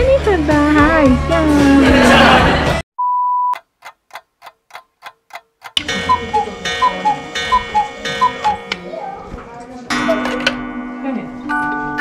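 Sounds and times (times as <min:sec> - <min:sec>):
short beep: 0:03.0 - 0:03.6
clock ticking: 0:03.5 - 0:08.9
two-note cuckoo call: 0:05.8 - 0:09.1.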